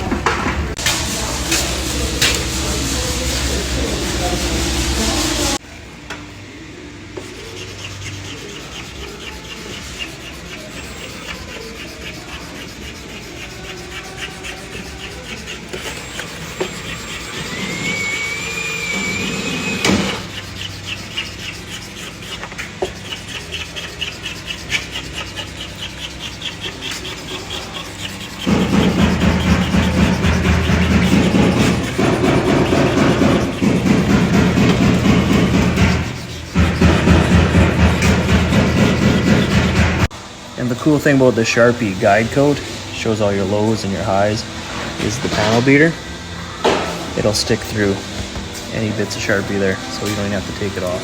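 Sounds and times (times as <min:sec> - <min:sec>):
abrasive rubbing on car panel: 0:07.3 - 0:40.1
short rising squeal: 0:17.0 - 0:20.2.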